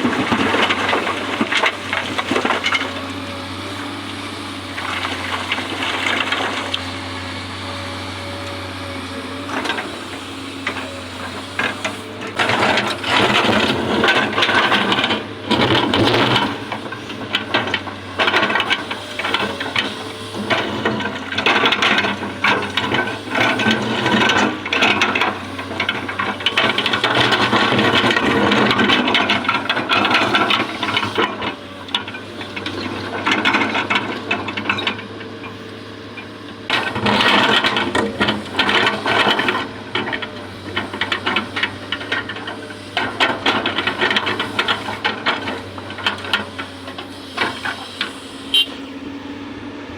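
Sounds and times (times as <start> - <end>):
excavator engine drone: 0.0 - 49.9
excavator rattling and scraping: 0.0 - 49.9.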